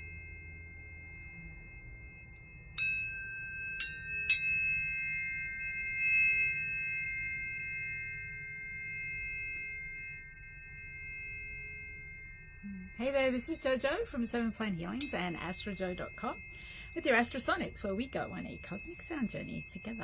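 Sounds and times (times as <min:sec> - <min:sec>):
metallic ping of tuning fork strike: 0:00.0 - 0:14.1
tuning forks ringing: 0:00.0 - 0:20.0.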